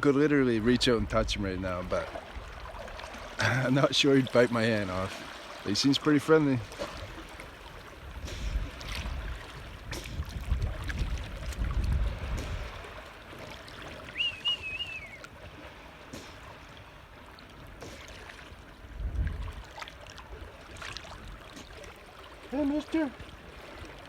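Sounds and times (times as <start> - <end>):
wind rumble on microphone: 0.0 - 3.2, 7.0 - 13.4, 18.8 - 21.4
water lapping and trickling: 0.0 - 24.0
high wavering call: 14.1 - 15.3.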